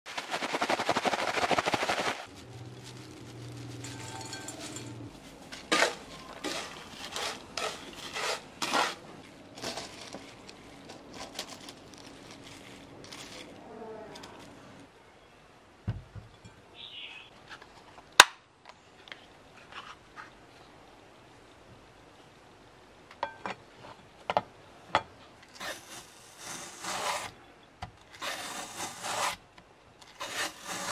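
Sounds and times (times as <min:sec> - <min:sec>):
spatula scraping frying pan: 0:05.6 - 0:09.1.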